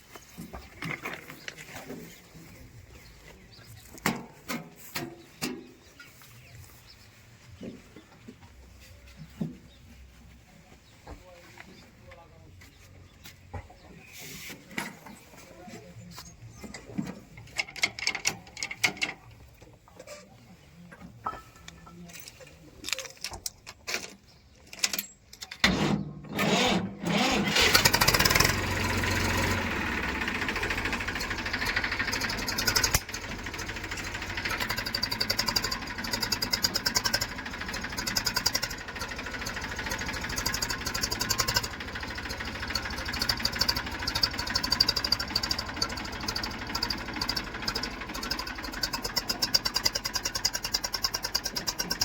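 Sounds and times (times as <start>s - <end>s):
diesel engine starting and running: 25.6s - 52.0s.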